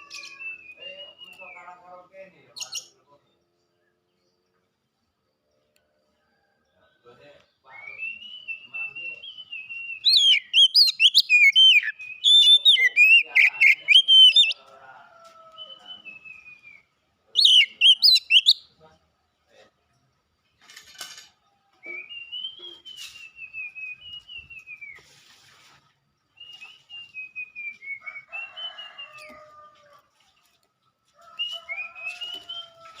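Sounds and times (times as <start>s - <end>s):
bird singing varied phrases: 0.0s - 4.3s, 7.2s - 14.7s, 15.5s - 18.8s, 26.3s - 29.4s, 31.4s - 33.0s.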